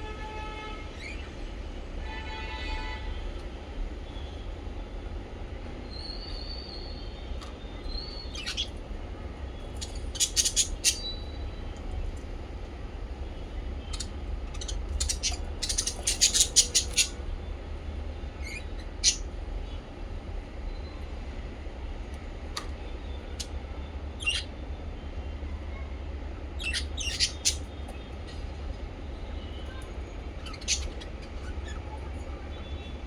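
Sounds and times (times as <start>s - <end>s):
parrots chirping: 7.8s - 8.8s, 9.6s - 11.6s, 13.8s - 17.2s, 18.4s - 19.3s, 24.2s - 24.5s, 26.6s - 28.4s, 29.7s - 33.0s.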